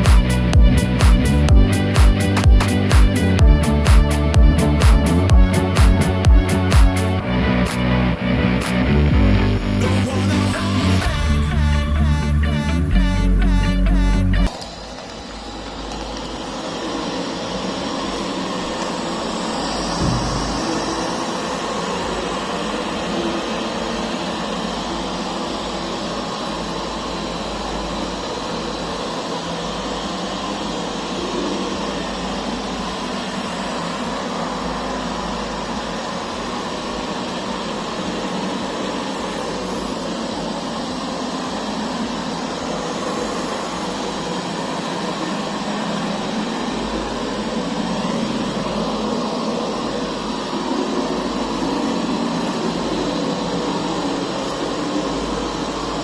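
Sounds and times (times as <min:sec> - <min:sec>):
robot vacuum whirring: 0:14.5 - 0:26.5, 0:30.0 - 0:56.0.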